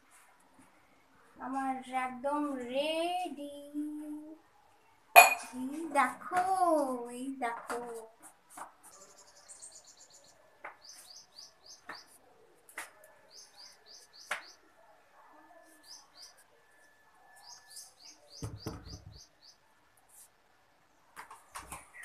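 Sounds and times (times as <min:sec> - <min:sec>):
small birds chirping: 0:08.7 - 0:14.8, 0:15.5 - 0:16.6, 0:17.2 - 0:19.7.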